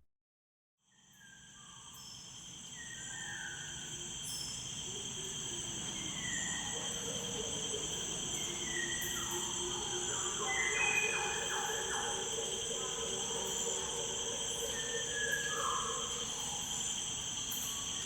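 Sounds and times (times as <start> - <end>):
insects chirping: 1.0 - 18.0.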